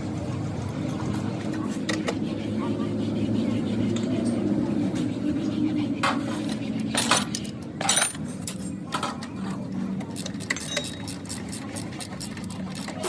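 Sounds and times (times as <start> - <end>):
metal tools clinking: 7.0 - 8.8, 10.2 - 12.6.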